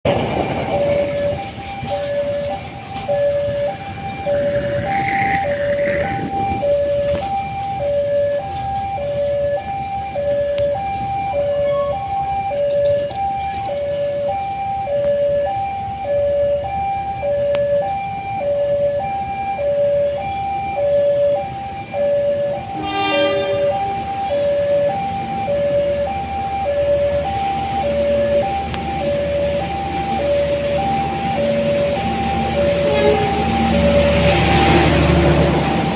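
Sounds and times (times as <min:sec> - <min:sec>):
level crossing two-tone alarm: 0:00.6 - 0:35.5
short horn blast: 0:22.8 - 0:23.8, 0:32.8 - 0:33.5.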